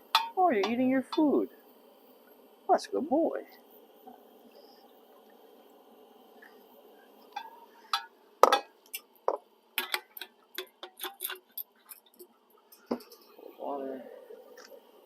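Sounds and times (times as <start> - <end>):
cup and canteen clinking: 7.3 - 13.3.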